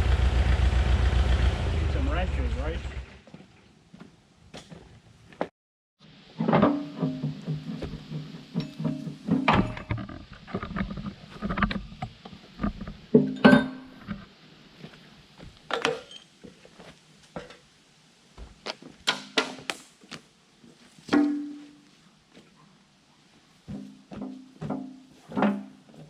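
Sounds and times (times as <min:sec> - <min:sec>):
sharp knocks and clanks: 0:06.4 - 0:14.3, 0:21.1 - 0:21.8, 0:23.7 - 0:26.0.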